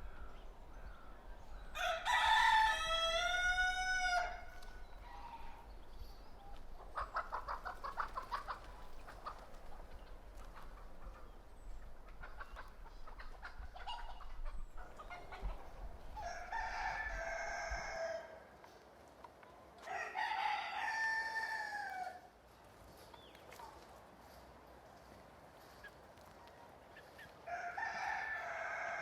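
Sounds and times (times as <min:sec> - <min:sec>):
rooster crowing: 0:01.8 - 0:04.6, 0:16.2 - 0:18.4, 0:19.8 - 0:22.2, 0:27.5 - 0:29.0
chicken clucking: 0:06.5 - 0:17.4.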